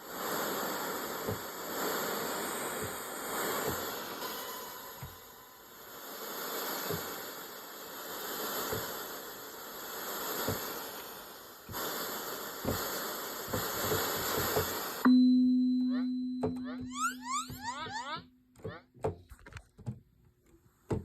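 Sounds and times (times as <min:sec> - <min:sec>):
synthesizer breath-like hissing: 0:00.0 - 0:15.0.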